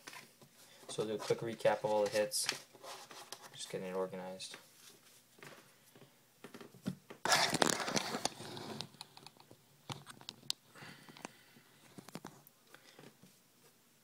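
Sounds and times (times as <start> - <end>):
trading cards rustling: 7.2 - 8.6.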